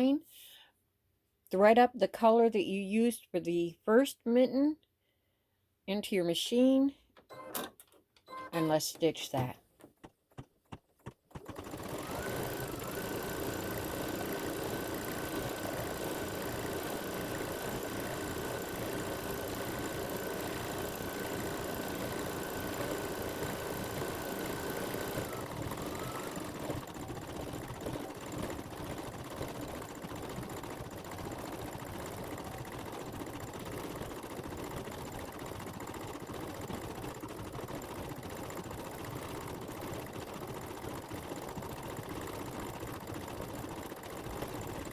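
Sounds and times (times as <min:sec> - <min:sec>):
embroidery machine running: 0:11.3 - 0:44.9.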